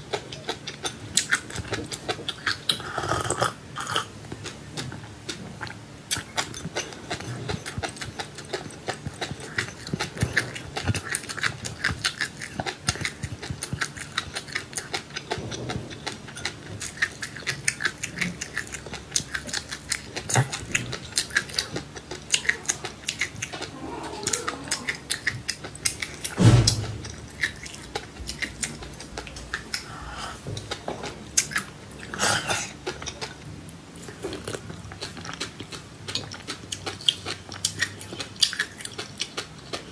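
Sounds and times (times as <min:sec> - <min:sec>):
chewing crunchy seeds: 0:00.0 - 0:39.9
heavy thump: 0:26.4 - 0:27.5.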